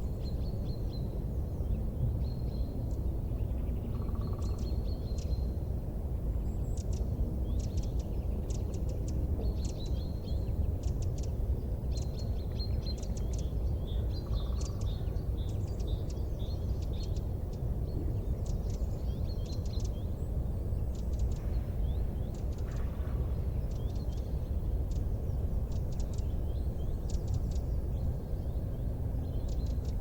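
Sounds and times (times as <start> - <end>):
low fire rumble: 15.1 - 30.0.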